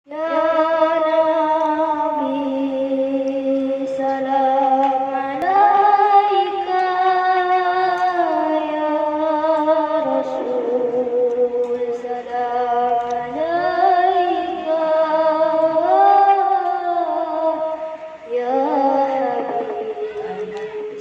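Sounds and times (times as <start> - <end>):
man singing devotional chant: 5.2 - 21.0.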